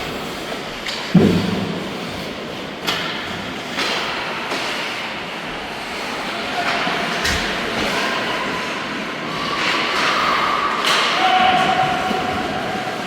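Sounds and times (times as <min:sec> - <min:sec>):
sharp knocks and thuds: 0:01.1 - 0:02.0
distant shouts: 0:07.8 - 0:13.0.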